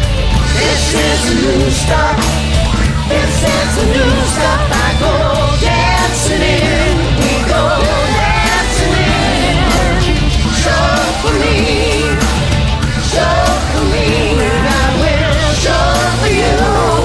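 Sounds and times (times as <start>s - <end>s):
rock backing track: 0.0s - 17.0s.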